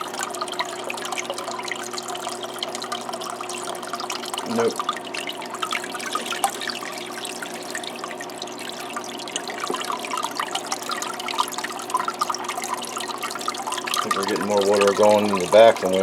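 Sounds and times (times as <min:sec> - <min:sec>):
faint steady hum: 0:00.0 - 0:16.0
water trickling and splashing: 0:00.0 - 0:16.0.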